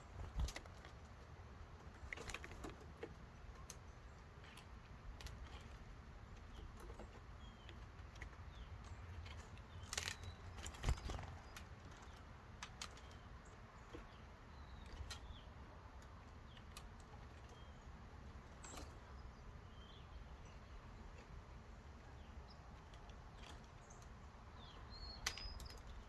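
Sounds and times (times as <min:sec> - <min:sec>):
faint bird chirps: 0:08.5 - 0:12.2, 0:16.4 - 0:26.0
beaks tapping on wood: 0:22.8 - 0:26.0.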